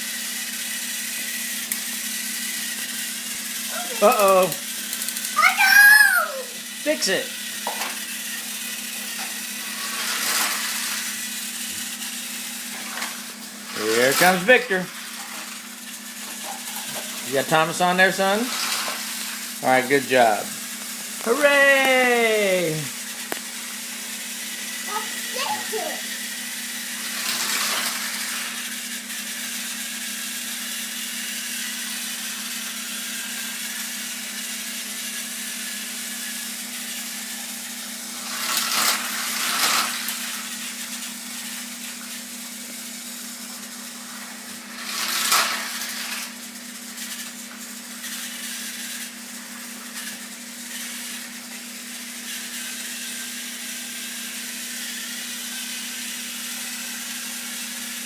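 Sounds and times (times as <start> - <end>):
toy train motor whirring: 0.0 - 58.0.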